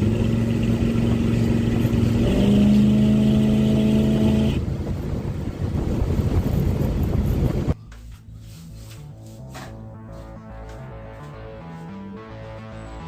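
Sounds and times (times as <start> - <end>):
pickup truck engine running: 0.0 - 7.7.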